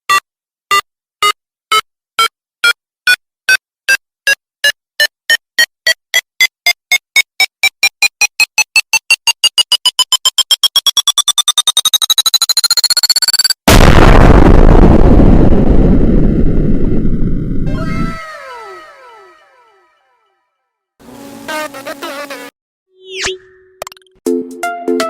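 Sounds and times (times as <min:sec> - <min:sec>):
accelerating electronic beeps: 0:07.4 - 0:13.6
explosion: 0:13.7 - 0:17.8.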